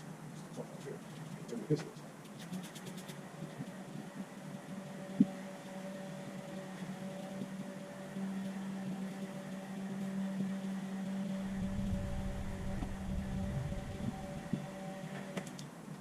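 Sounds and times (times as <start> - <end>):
mechanical motor hum: 2.4 - 15.7
low rumble: 11.4 - 14.6.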